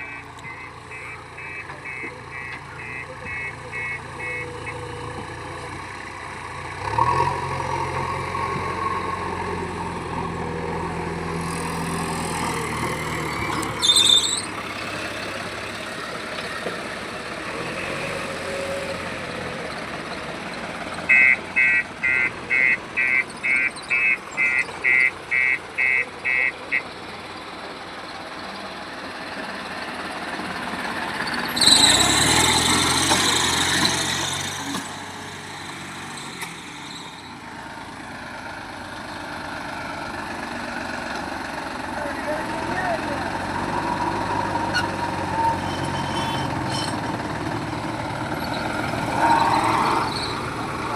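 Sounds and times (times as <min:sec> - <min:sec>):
reversing alarm beeping: 0:00.0 - 0:05.0, 0:21.1 - 0:26.9
heavy vehicle engine running: 0:00.0 - 0:50.9
passing vehicle engine: 0:05.2 - 0:25.4, 0:27.4 - 0:50.9
high squeal: 0:13.3 - 0:14.6, 0:31.3 - 0:33.0, 0:36.1 - 0:37.4, 0:44.7 - 0:47.1, 0:48.4 - 0:50.5.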